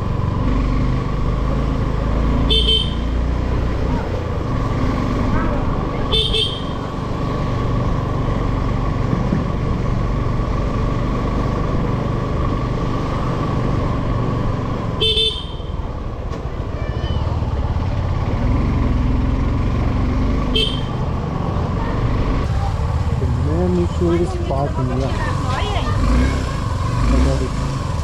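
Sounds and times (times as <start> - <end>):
motorcycle engine and road noise: 0.0 - 28.0
vehicle horn toots: 2.4 - 3.2, 6.0 - 6.8, 15.0 - 15.8, 20.5 - 21.0.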